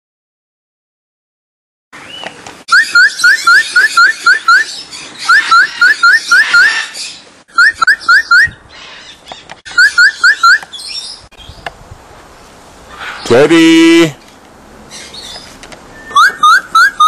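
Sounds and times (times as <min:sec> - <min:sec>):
bird whistling rising notes: 0:02.7 - 0:08.6, 0:09.7 - 0:11.2, 0:15.9 - 0:17.0.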